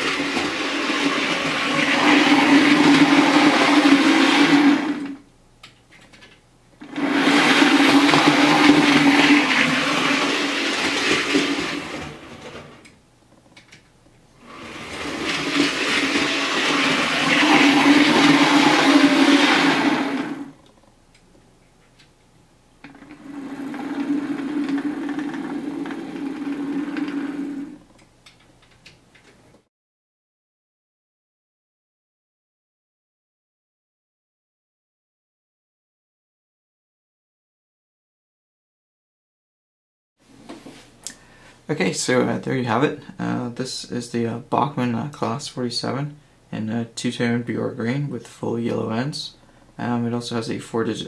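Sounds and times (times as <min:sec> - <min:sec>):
model train motor humming: 0:06.8 - 0:12.7, 0:14.4 - 0:20.5, 0:22.9 - 0:27.8.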